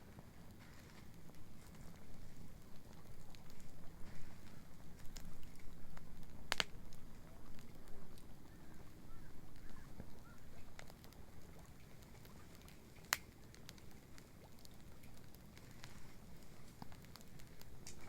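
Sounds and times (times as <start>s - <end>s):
low steady rumble: 0.0s - 14.3s
bonfire crackling and popping: 0.0s - 18.0s.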